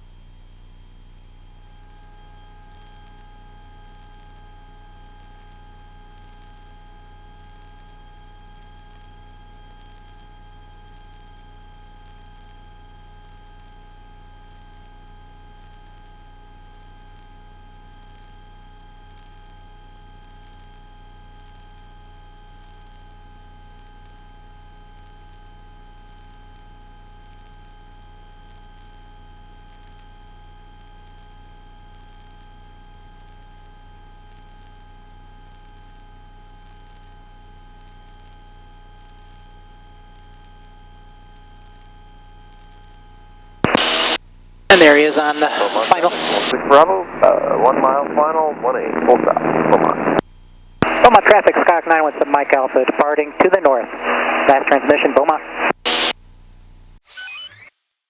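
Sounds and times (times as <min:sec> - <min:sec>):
high-pitched whine: 0:01.4 - 0:08.2, 0:57.0 - 0:58.0
faint fixed tones: 0:57.1 - 0:58.0.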